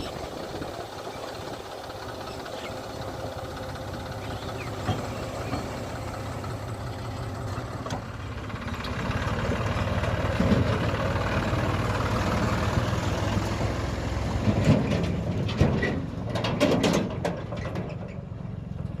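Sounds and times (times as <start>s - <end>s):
heavy diesel engine running: 0.0s - 19.0s
sharp metallic knocks and clanks: 14.5s - 18.1s.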